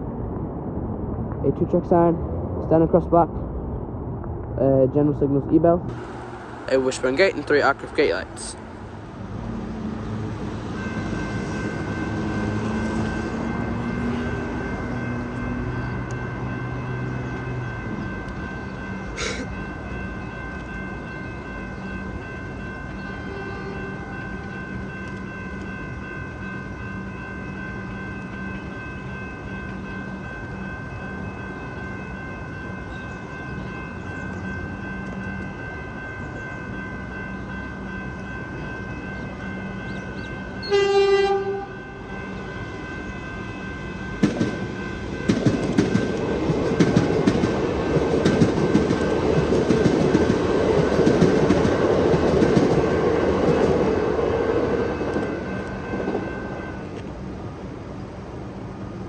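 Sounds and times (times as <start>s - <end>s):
train rumble passing: 0.0s - 59.0s
train horn: 22.9s - 24.7s, 40.6s - 42.5s
wheels clacking over rail joints: 43.9s - 56.3s.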